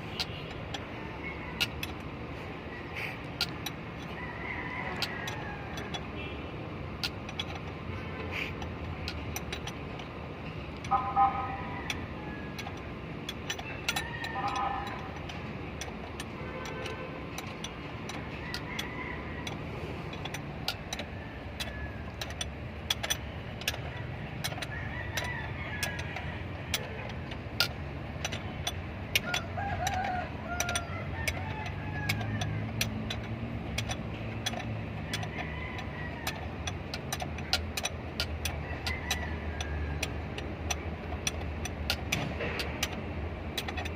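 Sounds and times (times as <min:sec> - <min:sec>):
sharp clicks: 0:00.0 - 0:43.9
rooster crowing: 0:04.0 - 0:06.0, 0:13.8 - 0:15.2, 0:18.4 - 0:19.7, 0:24.6 - 0:26.5, 0:29.2 - 0:32.6, 0:35.1 - 0:36.6, 0:38.6 - 0:40.2.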